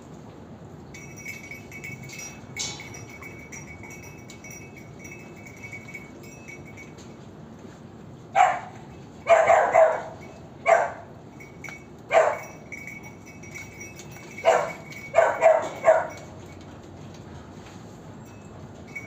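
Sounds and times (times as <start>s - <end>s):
dog barking: 8.4s - 11.1s, 12.1s - 12.5s, 14.4s - 16.2s.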